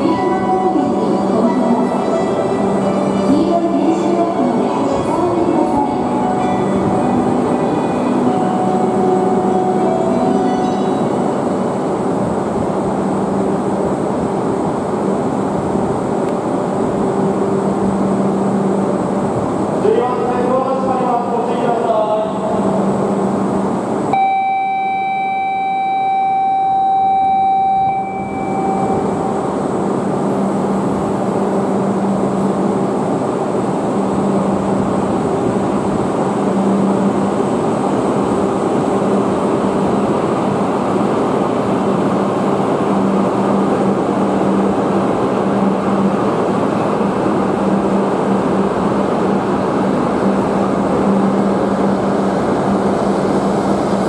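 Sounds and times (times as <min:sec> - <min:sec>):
high-speed train pulling away: 0:00.0 - 0:54.0
steady electronic tone: 0:24.1 - 0:32.2.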